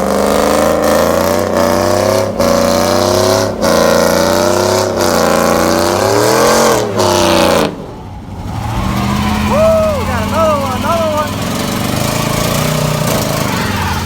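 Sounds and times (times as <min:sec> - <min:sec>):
vehicle engine revving hard: 0:00.0 - 0:14.0.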